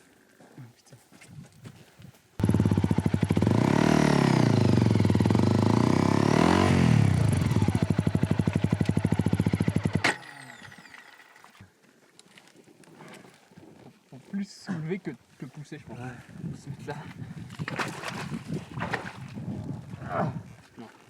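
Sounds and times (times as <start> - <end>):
motorcycle engine revving hard: 2.4 - 10.9.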